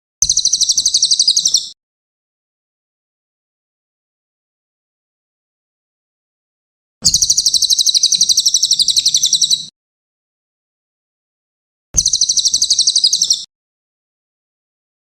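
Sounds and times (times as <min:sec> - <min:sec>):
songbird trilling: 0:00.2 - 0:01.8, 0:07.0 - 0:09.7, 0:12.0 - 0:13.5.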